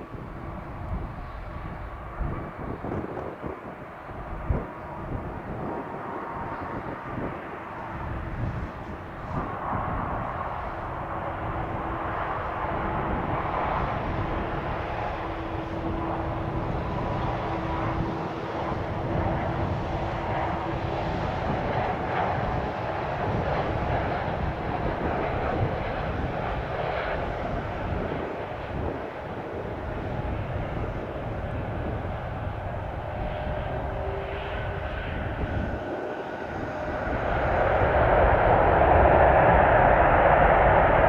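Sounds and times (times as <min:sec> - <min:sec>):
jet engines roaring: 0:00.0 - 0:41.0.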